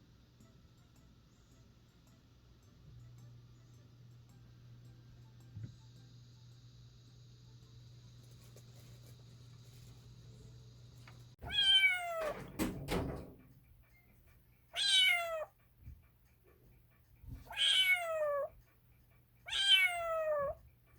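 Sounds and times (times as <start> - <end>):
cat meowing: 11.4 - 12.4, 14.7 - 15.6, 17.5 - 18.5, 19.5 - 20.6.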